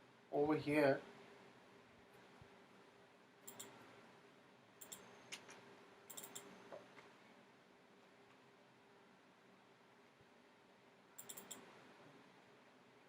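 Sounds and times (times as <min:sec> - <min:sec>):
low steady hum: 0:00.0 - 0:13.0
faint computer mouse clicks: 0:03.4 - 0:03.8, 0:04.8 - 0:06.8, 0:11.2 - 0:11.7.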